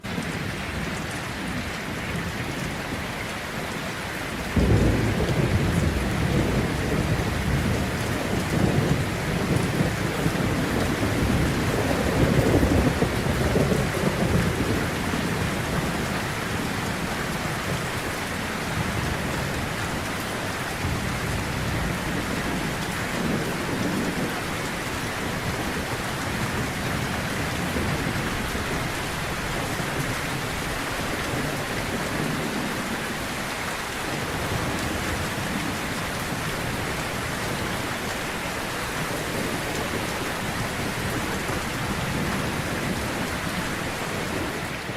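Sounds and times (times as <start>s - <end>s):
rain on a tin roof: 0.0s - 44.9s
thunder rolling: 4.5s - 18.1s.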